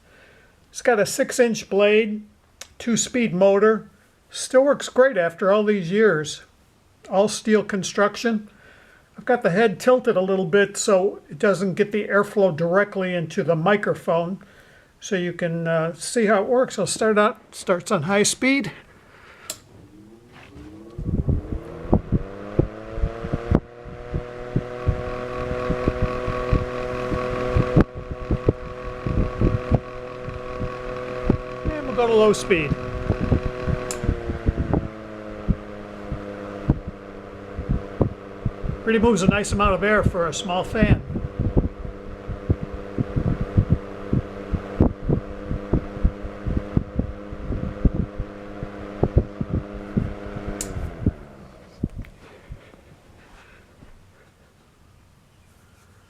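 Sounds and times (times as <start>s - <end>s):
table fan humming: 18.5s - 53.3s
airflow buffeting microphone: 18.6s - 54.6s
switch clicking: 19.4s - 19.7s, 33.8s - 34.1s, 50.6s - 50.8s
low thumps: 19.4s - 40.0s, 40.8s - 52.6s.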